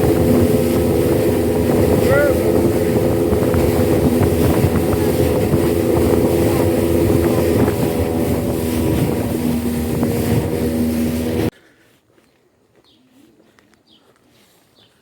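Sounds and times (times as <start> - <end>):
outboard engine running: 0.0 - 11.5
water rushing: 0.0 - 11.5
wind on microphone: 0.0 - 11.5.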